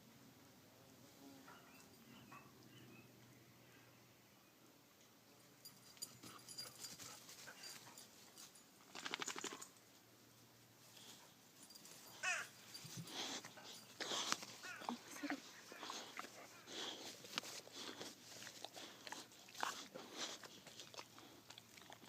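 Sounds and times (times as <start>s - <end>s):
puppy whining: 12.1s - 18.1s.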